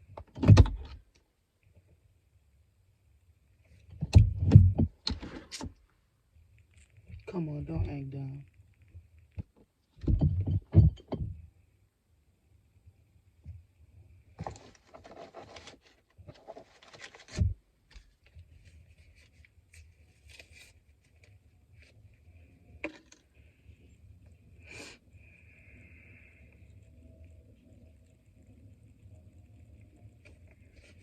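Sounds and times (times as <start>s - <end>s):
takeout packaging rustling: 14.4s - 21.3s.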